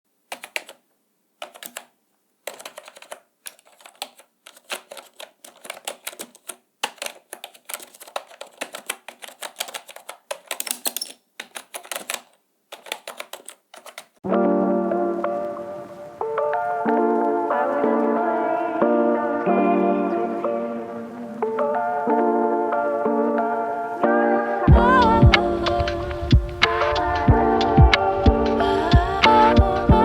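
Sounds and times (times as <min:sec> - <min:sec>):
keyboard typing: 0:00.2 - 0:00.8, 0:01.4 - 0:14.2
music: 0:14.2 - 0:30.0.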